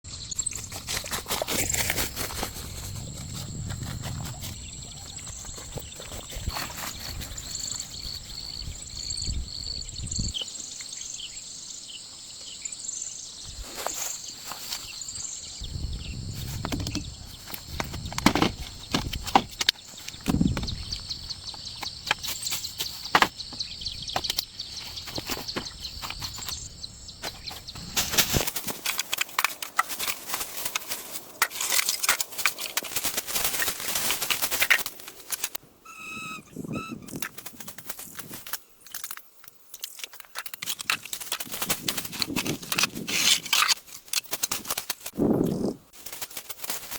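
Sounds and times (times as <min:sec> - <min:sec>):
birds chirping: 0:00.1 - 0:28.4, 0:35.6 - 0:38.9.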